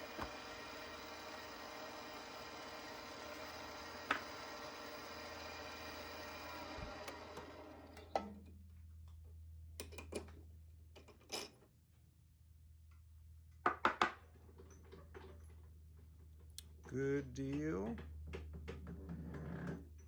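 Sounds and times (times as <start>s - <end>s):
wood lathe winding down: 0.0s - 8.2s.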